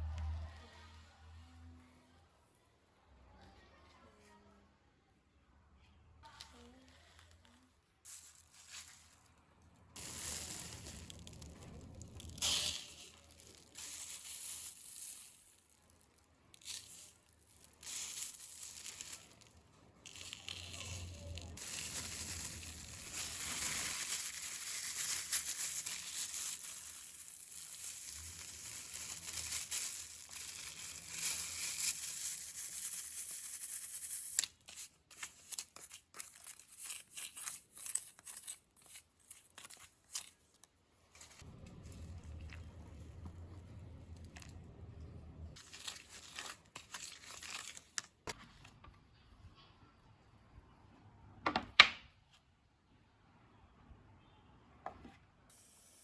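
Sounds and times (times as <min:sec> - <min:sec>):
crinkling and tearing: 0:06.4 - 0:48.8.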